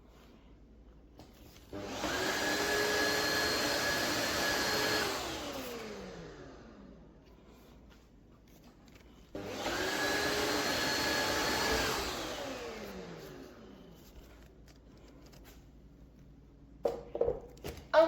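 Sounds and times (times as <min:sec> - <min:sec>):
floor cleaner suction motor whine: 0:01.4 - 0:07.7, 0:09.3 - 0:14.8.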